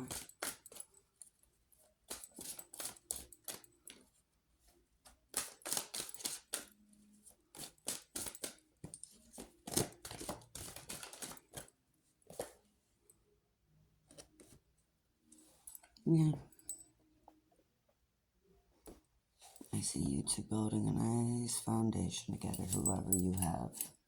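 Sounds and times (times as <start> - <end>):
cards being shuffled: 0.0 - 0.9, 2.1 - 3.7, 5.2 - 6.7, 7.5 - 8.6, 9.2 - 11.7.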